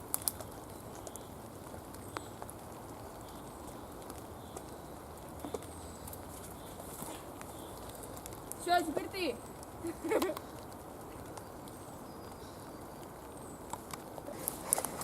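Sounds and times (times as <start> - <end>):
rain falling in forest: 0.0 - 15.0.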